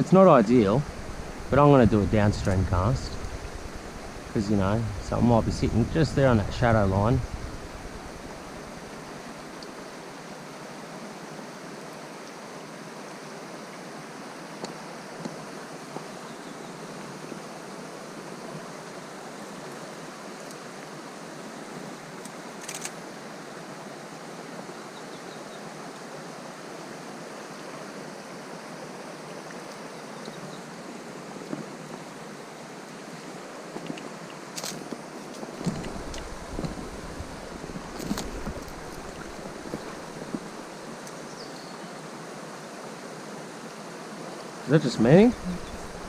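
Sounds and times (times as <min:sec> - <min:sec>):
river flowing: 0:00.0 - 0:46.0.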